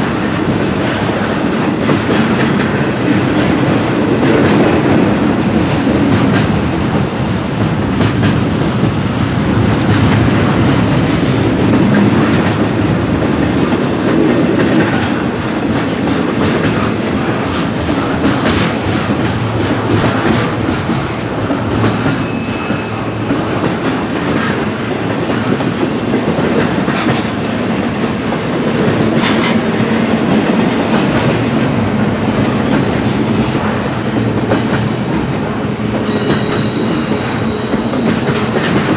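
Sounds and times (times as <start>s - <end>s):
freight train wheels rumbling: 0.0s - 38.9s
high-pitched wheel squeal: 22.2s - 23.2s, 30.4s - 31.9s, 36.0s - 38.6s.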